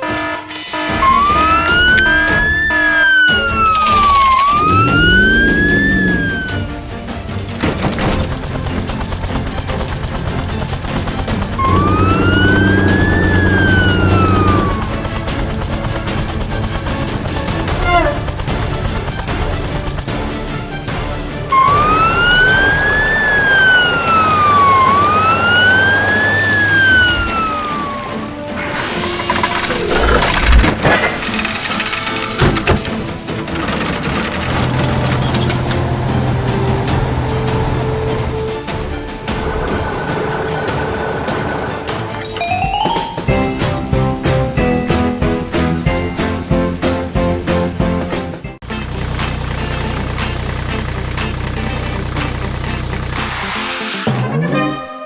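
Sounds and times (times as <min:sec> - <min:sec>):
emergency siren wailing: 0:00.0 - 0:07.5, 0:08.1 - 0:19.9, 0:21.4 - 0:30.5, 0:34.9 - 0:43.5
background music: 0:00.0 - 0:55.0.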